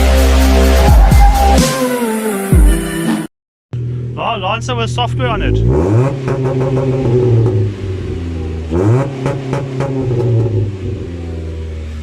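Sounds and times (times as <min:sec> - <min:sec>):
car engine revving: 0:03.8 - 0:12.0.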